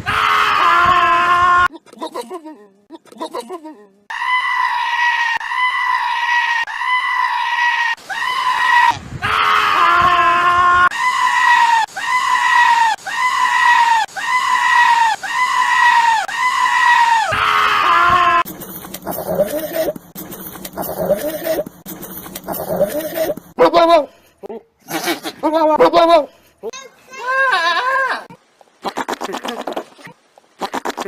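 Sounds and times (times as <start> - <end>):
goat screaming: 4.1 - 18.5, 24.8 - 26.3, 30.6 - 31.0
goat bleating: 22.5 - 24.0, 24.8 - 26.2, 27.2 - 31.0.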